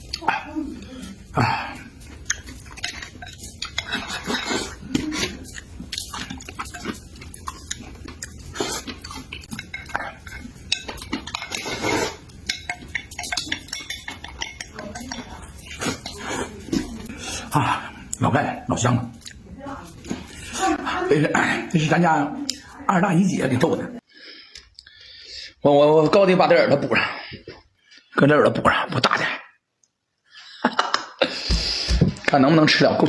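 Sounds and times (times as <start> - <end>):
utensils clicking against dishes: 0.0 - 18.2.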